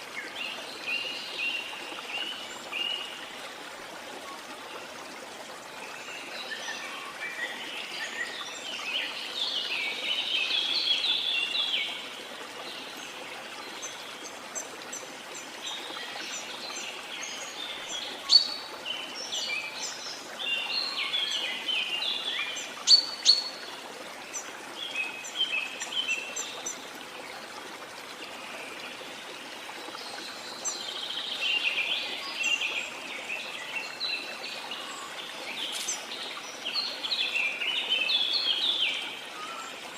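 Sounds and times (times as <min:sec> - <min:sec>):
small birds chirping: 0:30.1 - 0:39.9.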